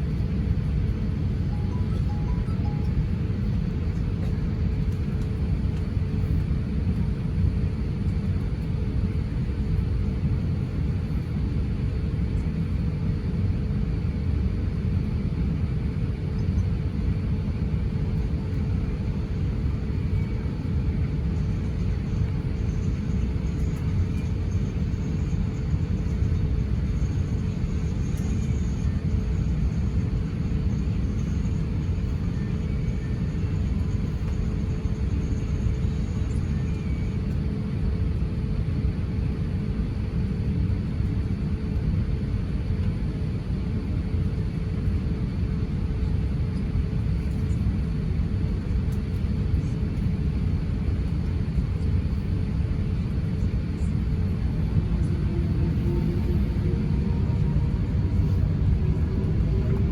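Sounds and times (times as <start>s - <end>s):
jet engines rumbling in cabin: 0.0s - 59.9s
faint steady hum: 13.7s - 59.9s.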